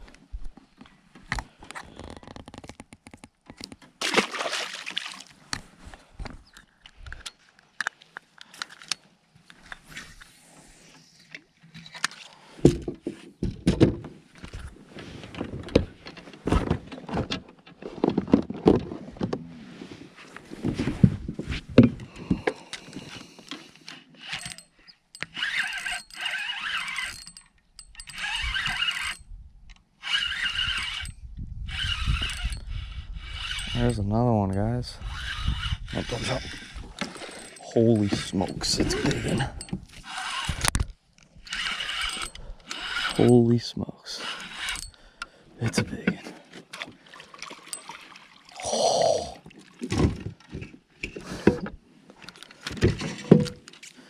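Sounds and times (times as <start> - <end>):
gear knocks clicks and scrapes: 0.8 - 4.0, 20.6 - 43.6, 44.2 - 46.8, 49.9 - 54.0
high-pitched rasp: 24.2 - 27.3, 27.9 - 29.2, 30.0 - 31.1, 31.7 - 34.0, 35.0 - 40.7, 41.5 - 43.4, 44.1 - 45.0.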